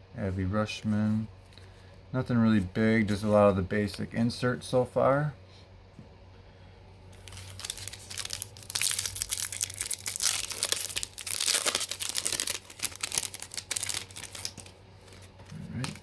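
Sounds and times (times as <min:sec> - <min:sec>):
foil wrapper tearing and crinkling: 0:07.2 - 0:16.0.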